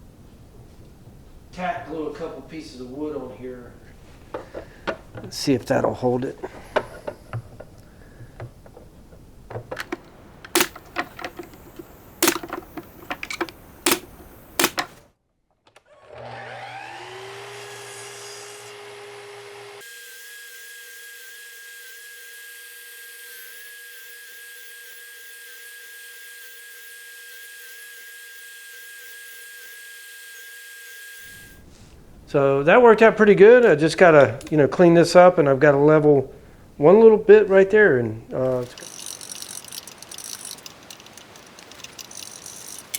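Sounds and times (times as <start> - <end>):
wooden knocks and clicks: 6.8 - 15.0, 38.5 - 42.9
miter saw cutting wood: 9.8 - 15.0, 16.0 - 31.5.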